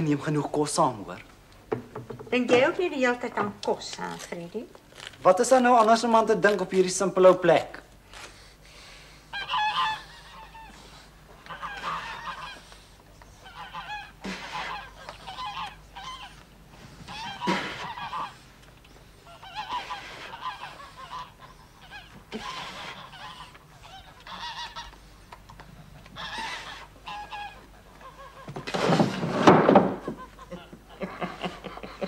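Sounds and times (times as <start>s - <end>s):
birds honking: 9.3s - 16.4s, 17.0s - 25.2s, 25.9s - 28.6s.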